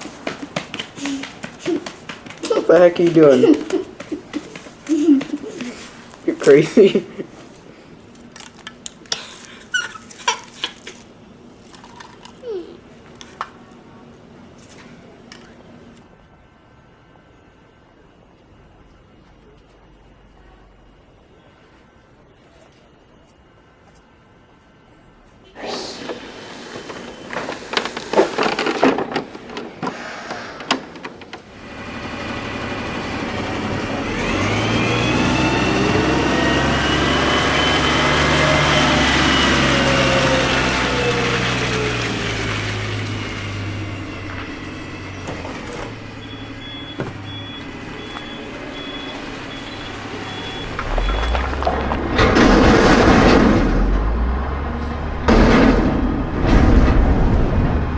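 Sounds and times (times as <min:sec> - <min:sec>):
truck engine running: 0:50.8 - 0:53.1.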